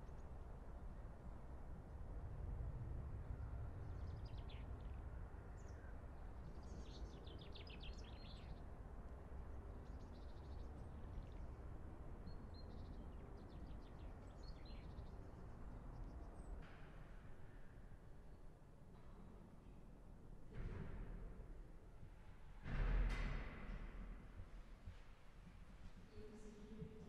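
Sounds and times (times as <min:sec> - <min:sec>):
low background rumble: 0:00.0 - 0:27.0
songbirds chirping: 0:03.6 - 0:16.6.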